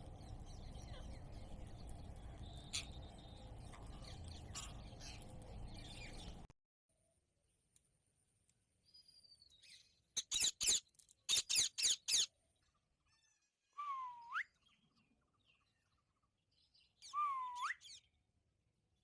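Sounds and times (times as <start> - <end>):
parrot whistles sweeping up: 17.0 - 17.9.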